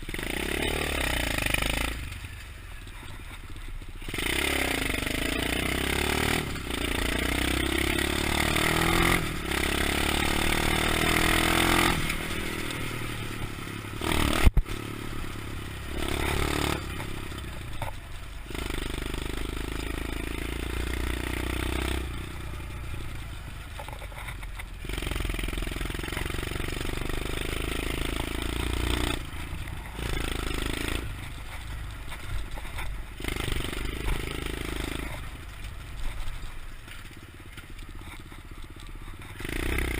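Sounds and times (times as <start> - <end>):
motorbike engine revving: 0.0 - 3.1, 4.0 - 39.9.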